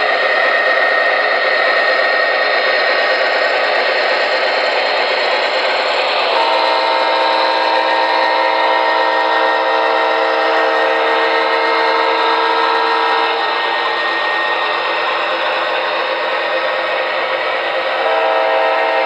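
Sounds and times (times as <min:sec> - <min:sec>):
model locomotive running noise: 0:00.0 - 0:19.0
model train horn blast: 0:06.3 - 0:13.7, 0:17.9 - 0:19.0.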